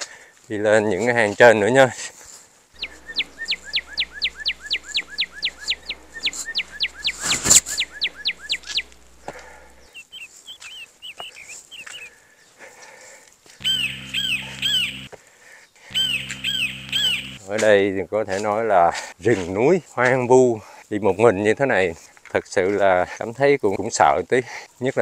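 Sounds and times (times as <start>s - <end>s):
bird whistling descending notes: 2.8s - 9.0s, 13.6s - 15.1s, 15.9s - 17.4s
soft chirps: 2.8s - 12.1s, 13.6s - 15.1s, 15.9s - 17.4s.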